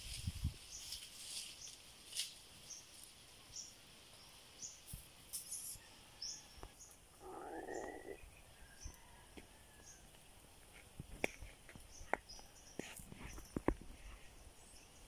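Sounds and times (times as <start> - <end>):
small bird chirping: 2.7 - 9.0.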